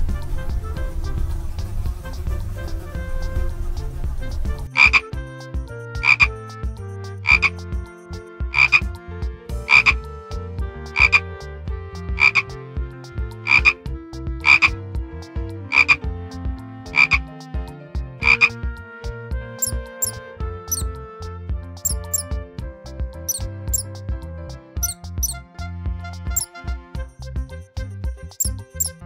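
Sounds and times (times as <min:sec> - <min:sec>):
frog croaking: 0:04.8 - 0:05.0, 0:06.0 - 0:06.3, 0:07.2 - 0:07.6, 0:08.6 - 0:08.9, 0:09.7 - 0:10.0, 0:11.0 - 0:11.2, 0:12.2 - 0:12.4, 0:13.5 - 0:13.8, 0:14.4 - 0:14.7, 0:15.7 - 0:16.0, 0:16.9 - 0:17.2, 0:18.2 - 0:18.6, 0:22.0 - 0:22.2, 0:24.8 - 0:25.4.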